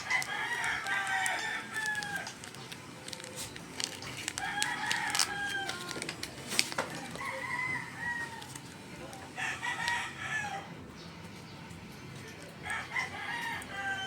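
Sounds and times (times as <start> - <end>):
rooster crowing: 0.0 - 2.4, 4.4 - 6.0, 7.0 - 8.7, 9.4 - 10.8, 12.6 - 14.0.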